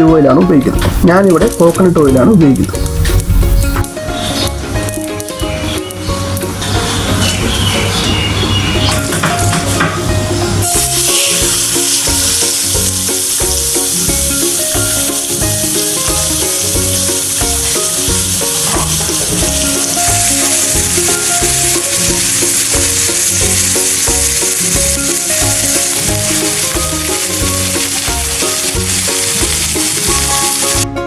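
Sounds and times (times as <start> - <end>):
background music: 0.0 - 31.0
chicken sizzling in a pan: 10.6 - 30.8.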